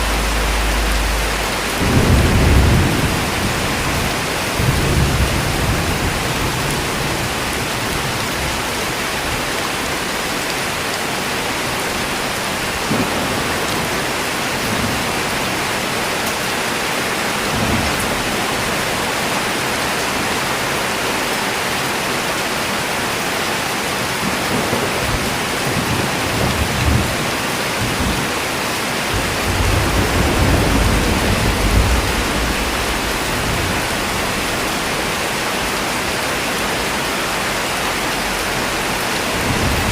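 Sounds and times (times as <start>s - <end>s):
thunder rumbling: 0.0s - 9.5s, 24.3s - 28.4s, 29.1s - 37.0s, 37.7s - 39.9s
heavy rain falling: 0.0s - 39.9s.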